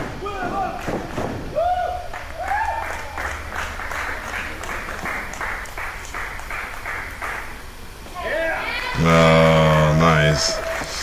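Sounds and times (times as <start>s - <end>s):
crowd clapping in rhythm: 0.0s - 7.9s, 9.0s - 11.0s
person shouting: 8.2s - 10.8s.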